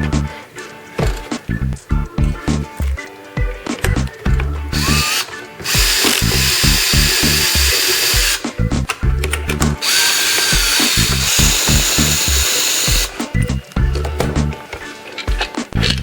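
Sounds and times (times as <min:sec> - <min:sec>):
music beat: 0:00.0 - 0:15.9
power tool whining: 0:04.8 - 0:08.5, 0:09.8 - 0:13.3.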